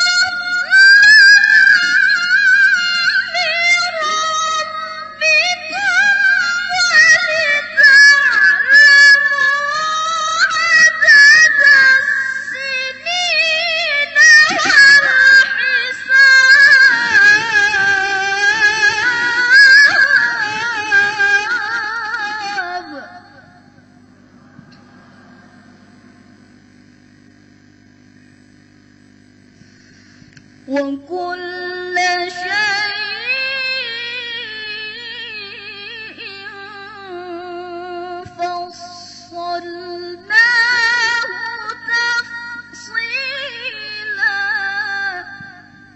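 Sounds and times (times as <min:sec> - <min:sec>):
girl reciting melodically: 0:00.0 - 0:23.4, 0:30.7 - 0:44.8.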